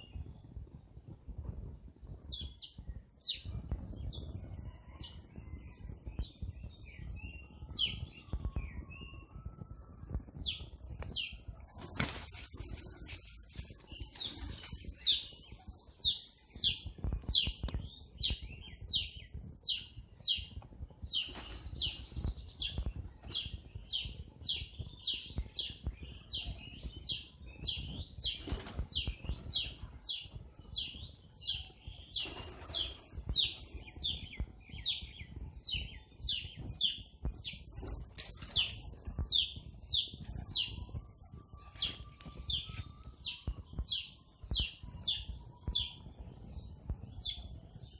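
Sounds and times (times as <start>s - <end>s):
pigeons' wings fluttering: 11.3s - 15.2s, 20.8s - 24.3s, 27.7s - 30.6s, 31.9s - 33.8s, 37.6s - 42.9s.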